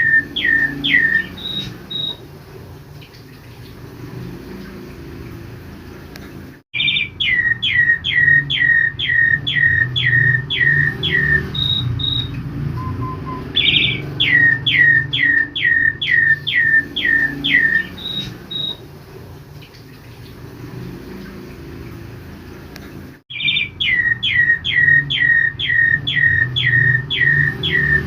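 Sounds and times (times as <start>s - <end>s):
starling whistling song: 0.0s - 2.3s, 6.8s - 18.8s, 23.3s - 28.0s.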